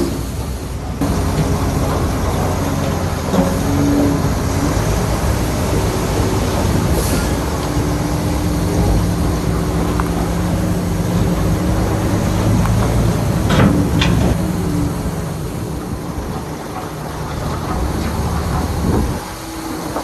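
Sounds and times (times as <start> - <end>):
bulldozer diesel engine rumbling: 0.0 - 20.0.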